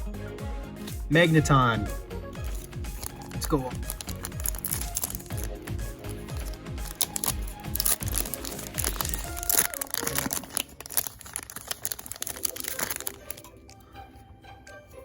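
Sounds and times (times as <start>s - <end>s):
background music: 0.0s - 15.0s
foil wrapper crinkling and tearing: 2.4s - 13.9s.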